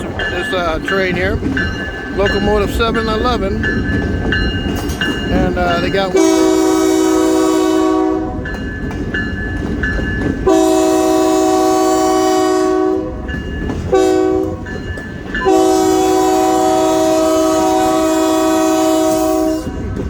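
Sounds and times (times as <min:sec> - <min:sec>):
locomotive air horn blasts: 0:06.2 - 0:08.4, 0:10.4 - 0:13.2, 0:13.9 - 0:14.7, 0:15.4 - 0:19.9.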